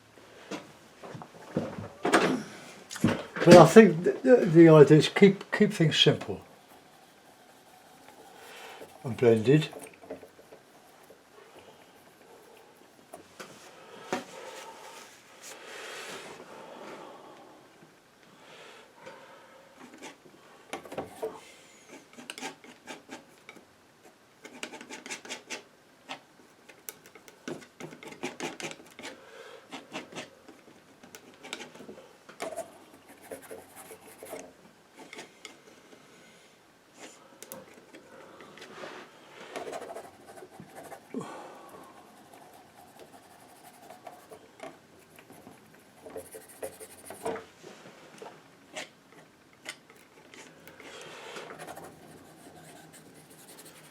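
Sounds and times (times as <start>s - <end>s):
painting knife scraping paint: 5.7s - 12.6s, 41.9s - 47.3s, 49.7s - 53.9s.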